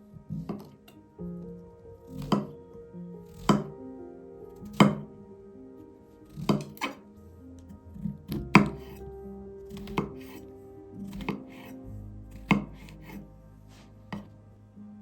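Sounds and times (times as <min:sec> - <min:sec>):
knife chopping on cutting board: 0:02.1 - 0:02.6, 0:03.3 - 0:03.7, 0:04.6 - 0:05.1, 0:06.3 - 0:07.0, 0:08.0 - 0:09.0, 0:09.7 - 0:10.4, 0:11.0 - 0:13.2, 0:14.1 - 0:14.3.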